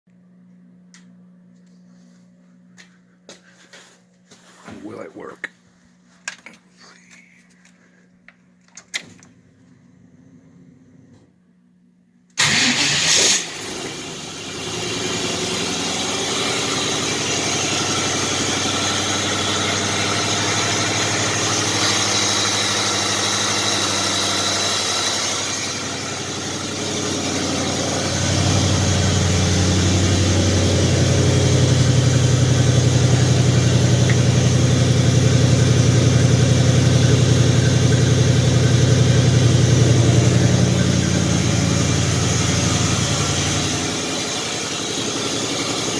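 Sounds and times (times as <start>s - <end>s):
car engine starting and idling: 8.7s - 11.4s, 12.3s - 45.9s.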